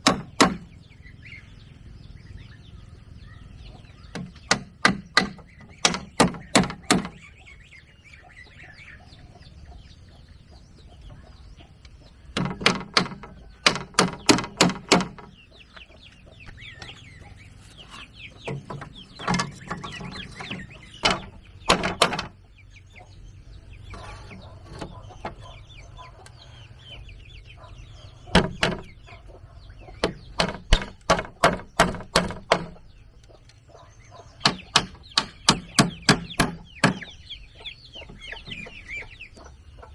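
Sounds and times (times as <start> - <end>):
sharp tool strikes on wood: 0.0 - 0.7, 4.1 - 7.2, 12.4 - 15.3, 18.5 - 22.4, 28.3 - 28.9, 30.0 - 32.8, 34.4 - 37.2
hens clucking softly: 37.0 - 39.9.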